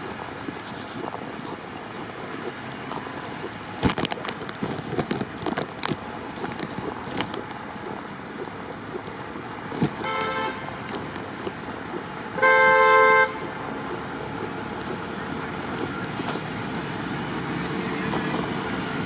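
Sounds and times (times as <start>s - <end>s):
rushing outdoor noise: 0.0s - 19.0s
vehicle horn: 10.0s - 10.7s, 12.4s - 13.5s.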